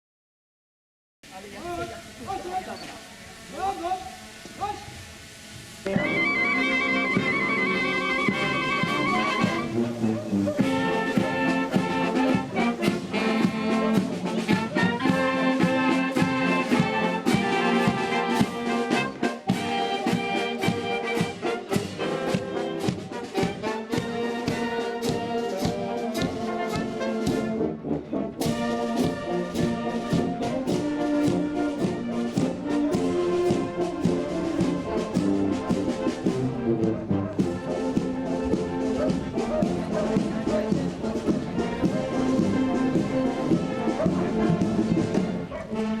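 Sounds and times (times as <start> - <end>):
brass band playing: 1.5 - 46.0
drum and cymbal strokes: 28.4 - 45.2.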